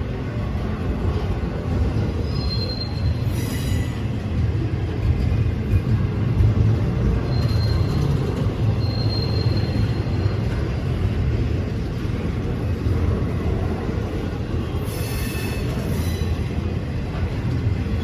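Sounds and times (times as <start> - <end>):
train rumbling past: 0.0 - 18.0
faint wheel squeal: 2.1 - 4.2, 7.2 - 10.7, 14.7 - 16.6.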